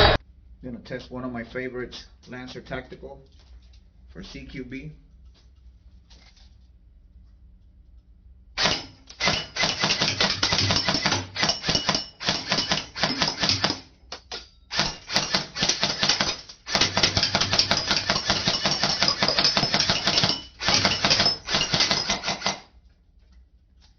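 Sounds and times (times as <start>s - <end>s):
airsoft gun firing bursts: 8.6s - 13.9s, 14.7s - 22.7s.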